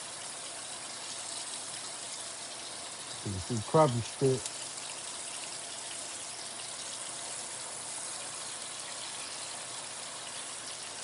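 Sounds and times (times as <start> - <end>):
fish fillets sizzling in a pan: 0.0 - 11.0.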